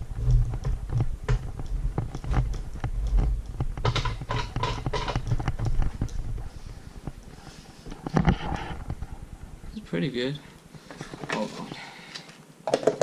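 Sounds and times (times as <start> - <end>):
low rumble: 0.0 - 7.4.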